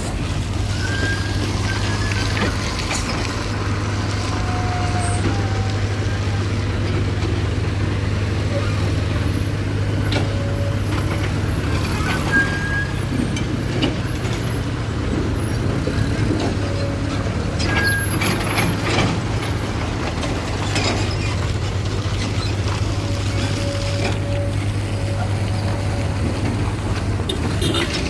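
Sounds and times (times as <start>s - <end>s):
heavy diesel machinery running: 0.0s - 28.0s
knocks and clanks: 9.1s - 28.0s.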